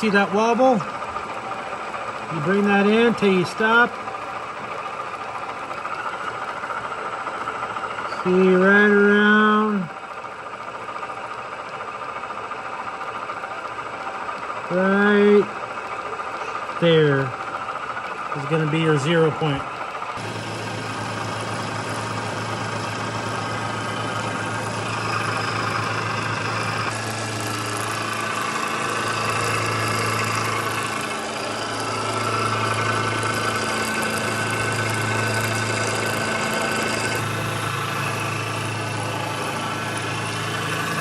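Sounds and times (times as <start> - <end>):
metal lathe motor hum: 0.0 - 41.0.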